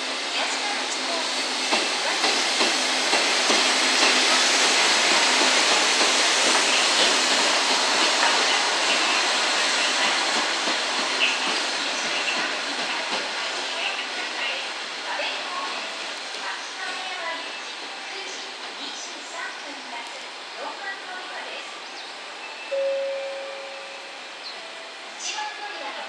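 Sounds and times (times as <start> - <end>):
hiss: 0.0 - 16.5
train wheels rumbling on rail: 0.0 - 21.6.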